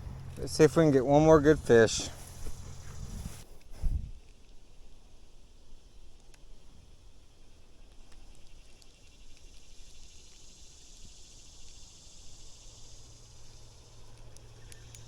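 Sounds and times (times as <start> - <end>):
high insect drone: 0.0 - 3.5, 7.0 - 15.0
low hum: 0.0 - 4.3
light ticks: 6.2 - 6.5, 7.8 - 10.4, 11.0 - 15.0.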